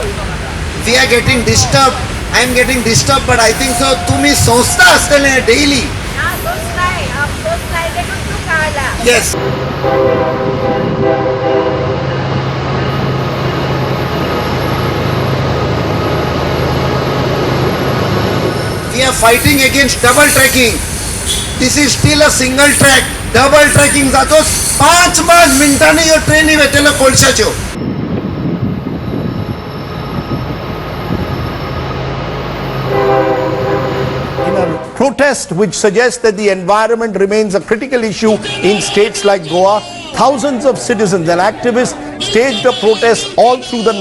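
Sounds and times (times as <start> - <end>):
train passing with loud rumble: 0.0 - 35.2
train horn: 3.3 - 6.5, 9.4 - 13.5, 32.3 - 35.0, 41.9 - 44.0.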